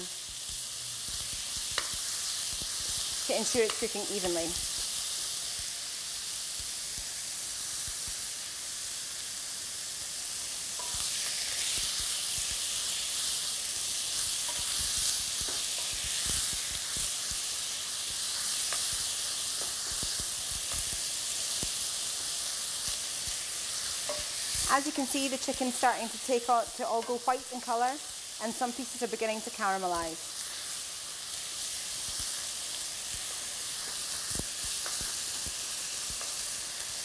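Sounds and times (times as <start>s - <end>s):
chicken sizzling in oil: 0.0s - 37.0s
spoon knocking and scraping pan: 10.8s - 11.1s, 24.0s - 24.7s, 26.9s - 27.4s.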